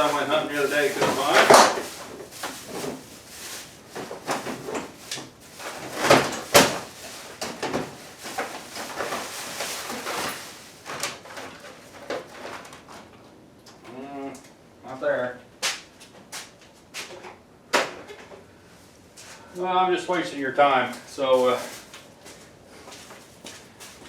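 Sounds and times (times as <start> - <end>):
tools clattering in a drawer: 0.0 - 3.1, 4.0 - 12.9.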